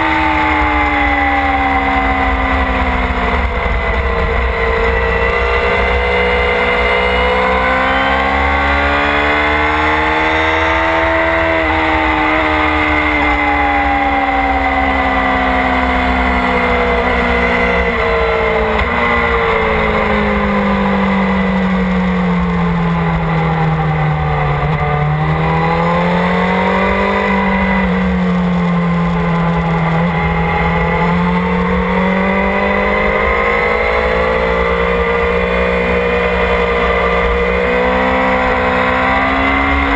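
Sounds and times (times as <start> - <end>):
wind rumble: 0.0 - 9.8
motorcycle engine revving: 0.0 - 39.9.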